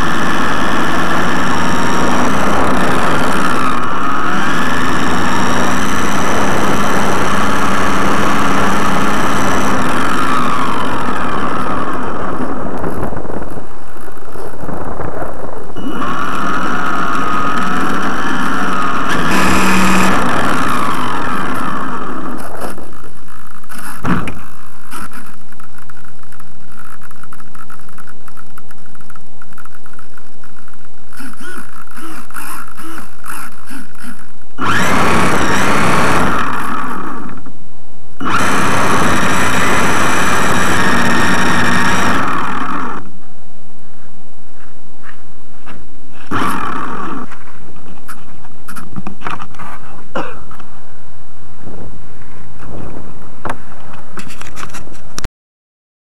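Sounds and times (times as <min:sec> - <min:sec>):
model plane motor whining: 0:00.0 - 0:14.6, 0:15.8 - 0:29.6, 0:30.6 - 0:37.5, 0:38.2 - 0:43.2, 0:46.2 - 0:49.8.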